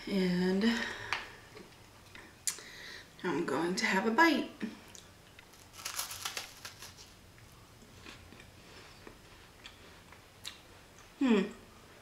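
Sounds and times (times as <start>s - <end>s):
chewing crackles: 4.9s - 8.5s
biting crisp wafer cookie: 5.4s - 7.2s.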